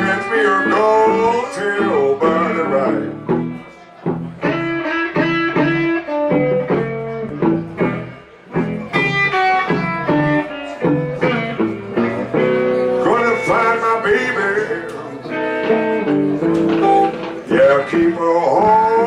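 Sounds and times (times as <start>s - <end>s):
person singing: 0.0s - 3.7s, 8.8s - 19.0s
blues guitar lick: 0.0s - 19.0s.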